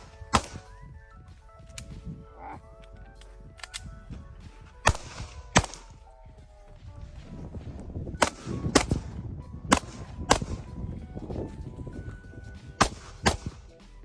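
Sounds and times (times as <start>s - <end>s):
pistol shots: 0.0s - 0.7s, 4.8s - 6.0s, 8.2s - 10.8s, 12.8s - 13.7s
faint background music: 0.0s - 14.0s.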